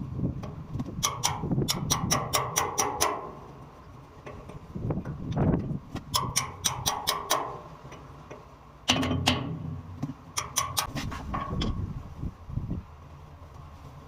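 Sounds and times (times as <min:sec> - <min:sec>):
sharp clicks and knocks: 0:00.4 - 0:03.4, 0:04.2 - 0:11.8.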